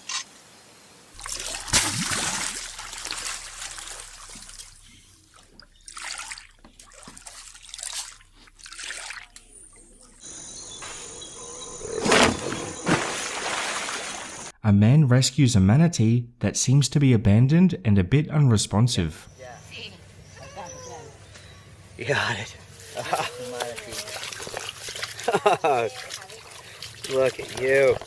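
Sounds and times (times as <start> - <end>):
water splashing and trickling: 1.1 - 10.4, 12.0 - 14.6, 22.3 - 28.0
loud water splash: 1.2 - 10.2, 12.0 - 14.5.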